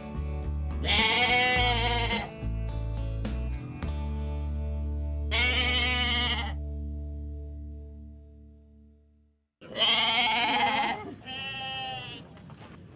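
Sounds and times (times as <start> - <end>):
background music with held tones: 0.0 - 9.3
goat bleating: 0.8 - 2.4, 5.3 - 6.6, 9.6 - 12.2.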